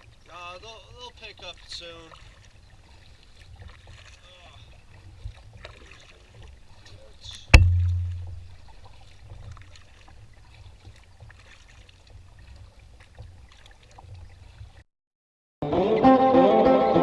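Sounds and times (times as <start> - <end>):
light splashing: 0.0 - 14.8
water dripping: 4.9 - 14.6
sharp knock with low boom: 7.5 - 8.5.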